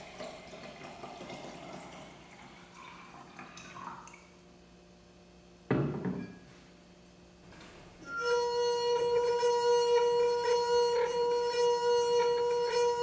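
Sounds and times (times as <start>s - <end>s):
crystal glass singing: 8.0s - 13.0s.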